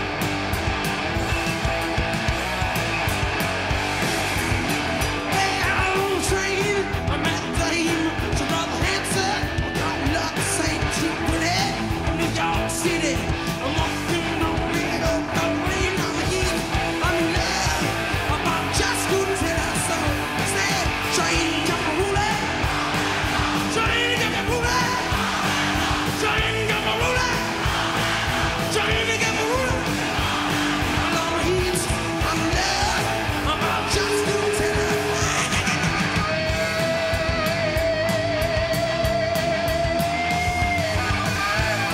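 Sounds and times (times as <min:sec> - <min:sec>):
rock guitar: 0:00.0 - 0:41.9
steady drum beat: 0:00.0 - 0:41.9
person singing: 0:28.6 - 0:39.9.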